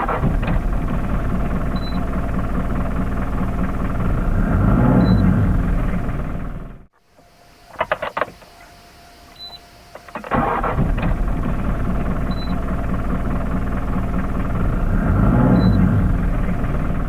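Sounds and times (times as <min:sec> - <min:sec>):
engine starting and idling: 0:00.0 - 0:08.8, 0:09.4 - 0:17.0
faint steady tone: 0:07.0 - 0:10.4
clicks: 0:07.2 - 0:11.1.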